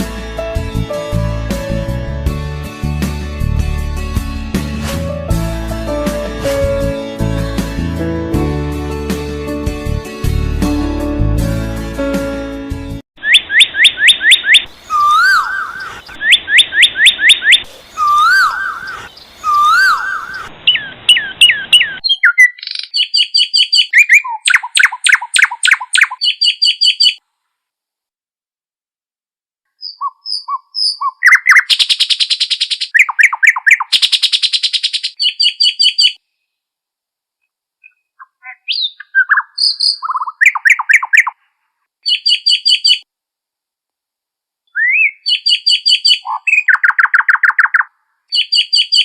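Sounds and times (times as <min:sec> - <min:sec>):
songbird chirping and trilling: 0:13.2 - 0:27.2, 0:29.7 - 0:36.2, 0:37.8 - 0:41.4, 0:42.0 - 0:43.1, 0:44.7 - 0:49.0.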